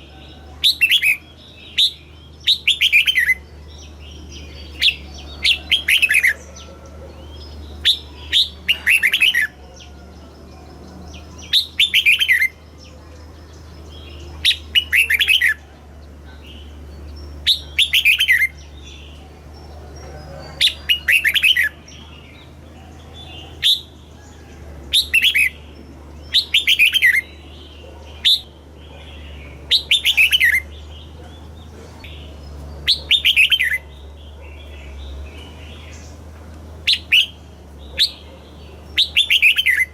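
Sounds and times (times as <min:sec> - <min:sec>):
bulbul singing whistled notes: 0:16.6 - 0:19.2, 0:25.0 - 0:27.6, 0:38.9 - 0:39.9.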